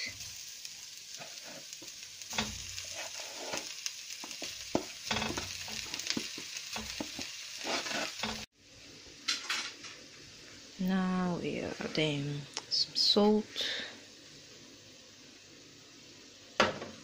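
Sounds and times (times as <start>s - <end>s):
onions frying in butter: 0.0s - 17.0s
wooden spoon knocking and scraping: 4.2s - 8.4s.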